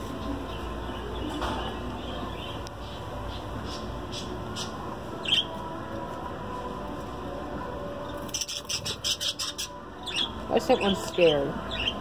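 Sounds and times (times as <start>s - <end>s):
small birds chirping: 0.1s - 5.6s, 8.1s - 12.0s.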